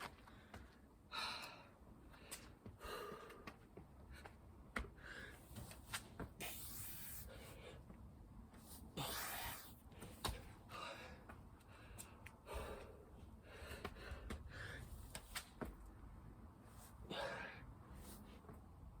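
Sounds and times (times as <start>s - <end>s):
person breathing hard: 0.2s - 5.5s, 9.0s - 15.1s, 17.0s - 17.8s.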